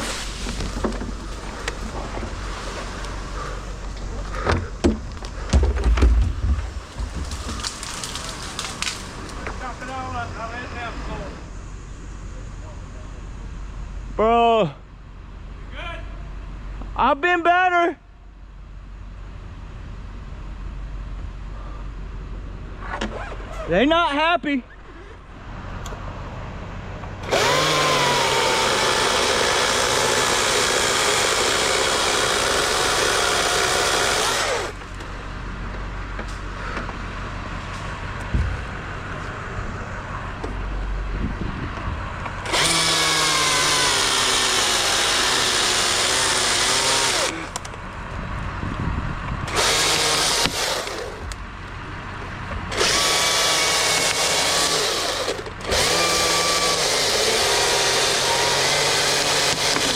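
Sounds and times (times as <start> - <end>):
chainsaw revving and cutting: 27.2 - 35.0, 42.4 - 47.6, 49.5 - 51.3, 52.7 - 59.9.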